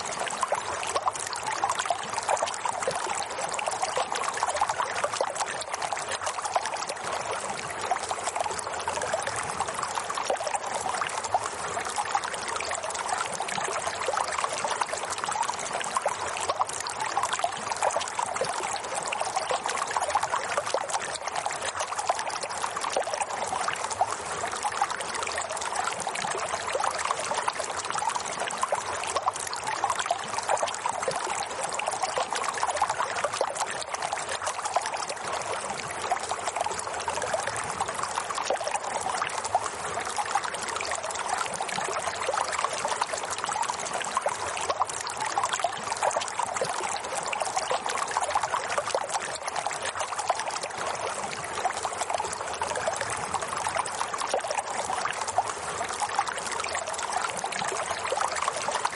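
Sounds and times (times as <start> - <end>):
water trickling: 0.0 - 58.9.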